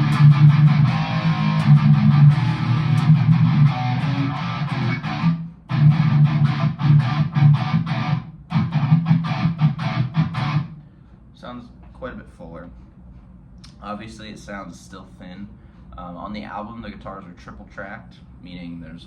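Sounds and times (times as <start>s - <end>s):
distorted electric guitar riffs: 0.0s - 10.8s.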